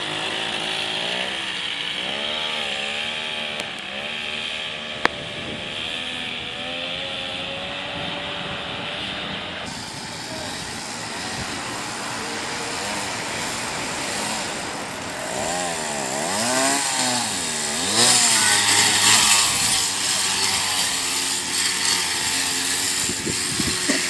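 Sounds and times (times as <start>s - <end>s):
small motor running: 0.0s - 24.0s
rushing hiss: 9.7s - 15.2s.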